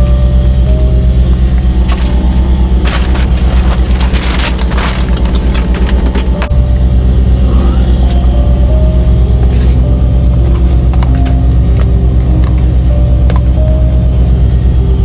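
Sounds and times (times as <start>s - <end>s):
truck diesel engine idling: 0.0s - 15.0s
close rustling: 1.9s - 6.4s.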